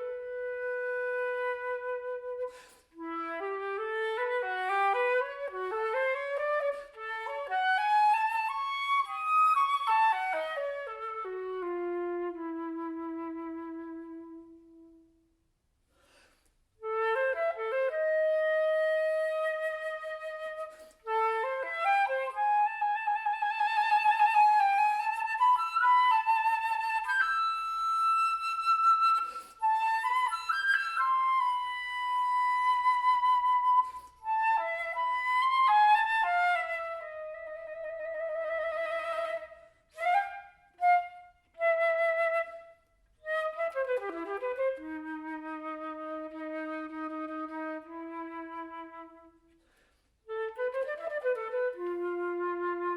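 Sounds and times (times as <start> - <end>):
flute melody: 0.0 - 15.2, 16.8 - 52.9
flute player breathing: 2.4 - 3.1, 15.8 - 16.8, 20.6 - 21.2, 29.0 - 29.8, 33.7 - 34.4, 49.4 - 50.3.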